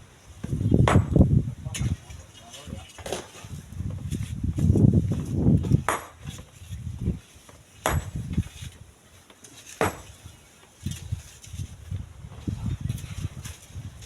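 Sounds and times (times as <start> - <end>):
wind buffeting microphone: 0.0 - 7.3, 7.9 - 8.9, 10.0 - 14.0
sharp knocks: 0.8 - 1.2, 7.8 - 8.2, 9.8 - 10.1.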